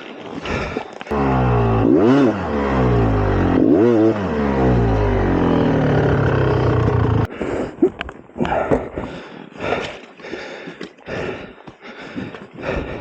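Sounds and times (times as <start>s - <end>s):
dirt bike engine revving: 1.1s - 7.3s.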